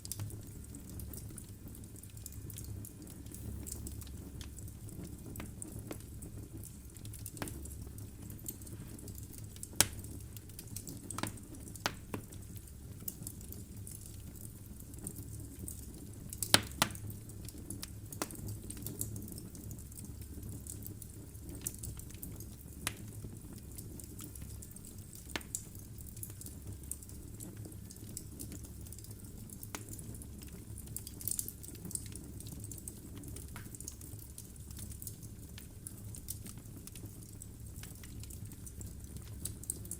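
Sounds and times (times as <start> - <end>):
fire rumbling: 0.0 - 39.9
logs crackling and popping: 0.0 - 39.9.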